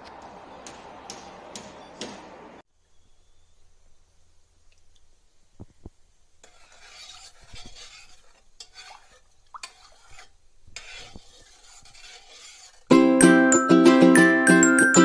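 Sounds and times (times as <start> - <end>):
utensil stirring in a dish: 6.4 - 12.9.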